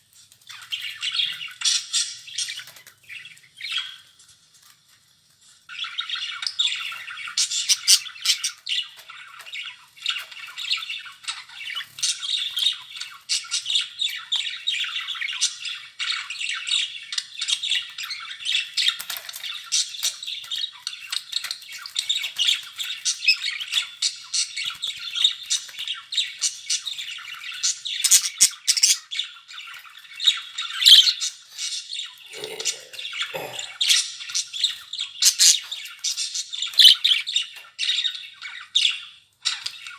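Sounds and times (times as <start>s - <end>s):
budgerigars chattering and warbling: 21.4s - 39.9s
bird squawks and chirps: 32.2s - 34.0s.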